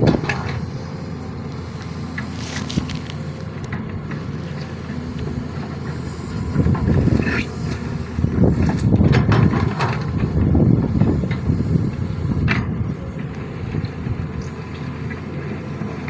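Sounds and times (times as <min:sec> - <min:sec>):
excavator diesel engine: 0:00.0 - 0:16.0.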